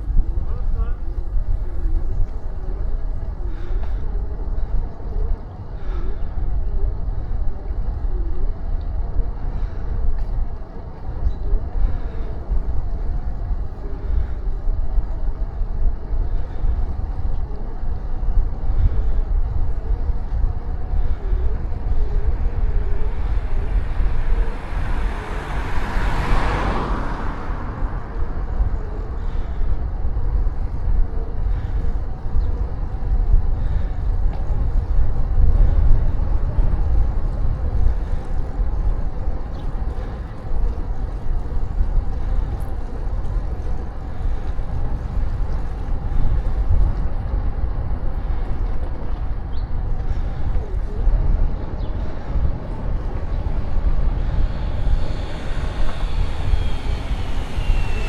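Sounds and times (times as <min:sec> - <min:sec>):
wind rumble on microphone: 0:00.0 - 0:58.0
car passing: 0:20.3 - 0:32.1, 0:49.3 - 0:58.0.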